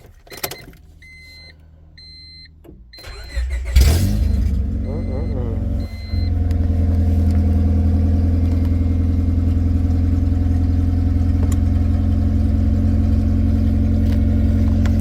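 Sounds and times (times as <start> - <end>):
car engine idling: 3.0 - 15.0.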